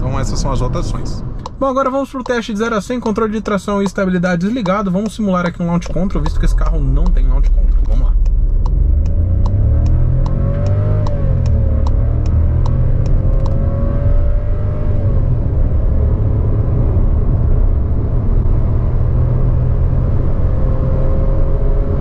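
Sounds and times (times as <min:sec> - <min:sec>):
car engine accelerating: 0:00.0 - 0:22.0
quick regular ticking: 0:01.2 - 0:13.6.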